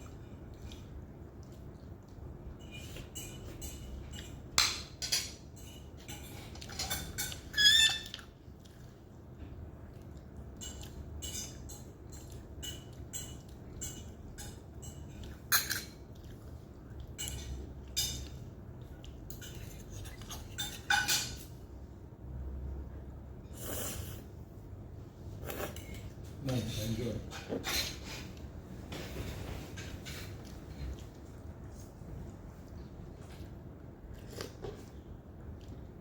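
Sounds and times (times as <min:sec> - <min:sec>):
utensils clinking on plates: 0:02.5 - 0:08.2, 0:10.6 - 0:16.1, 0:17.2 - 0:18.4, 0:19.3 - 0:21.5.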